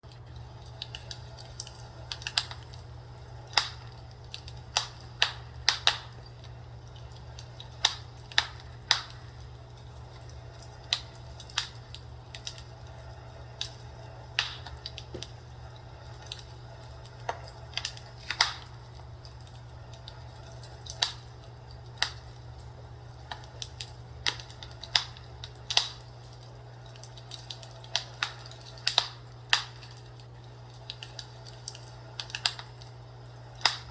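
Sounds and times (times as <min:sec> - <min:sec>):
fire crackling and popping: 0:00.0 - 0:33.9
steady low hum: 0:00.0 - 0:33.9.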